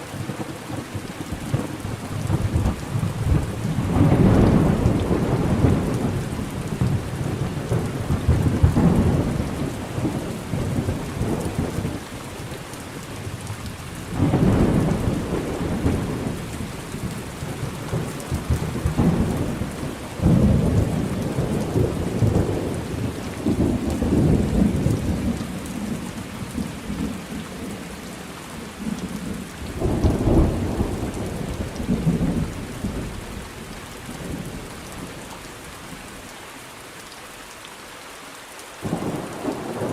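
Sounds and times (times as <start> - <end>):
steady rain: 0.0 - 39.9
rolling thunder: 1.0 - 12.5, 14.0 - 27.8, 28.8 - 33.4, 38.8 - 39.9.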